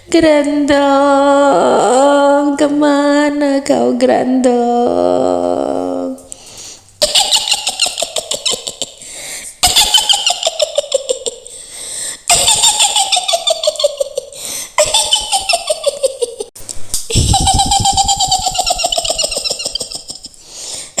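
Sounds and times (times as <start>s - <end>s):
woman cackling: 7.0s - 9.0s, 9.6s - 11.5s, 12.3s - 16.5s, 17.1s - 20.4s.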